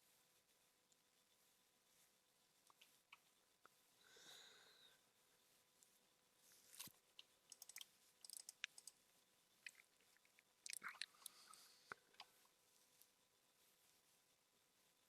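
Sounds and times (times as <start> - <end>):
faint small clicks and crackles: 2.6 - 3.8, 5.7 - 13.2.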